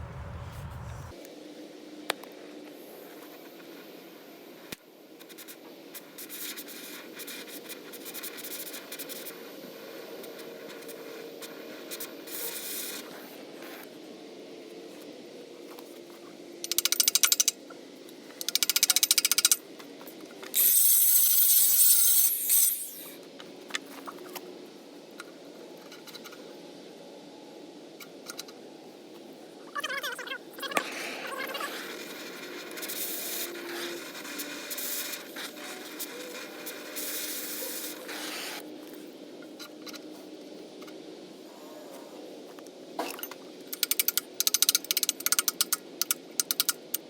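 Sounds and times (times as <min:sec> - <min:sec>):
harsh power tool bursts: 0:20.6 - 0:23.2.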